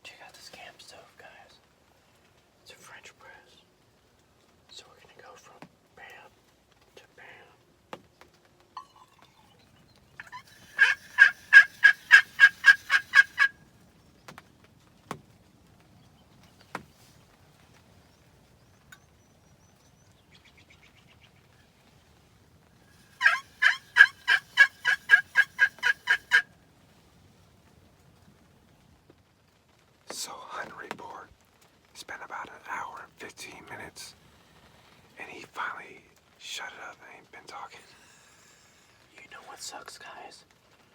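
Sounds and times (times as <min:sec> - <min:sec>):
turkey yelps: 0:10.2 - 0:13.6, 0:22.9 - 0:26.5.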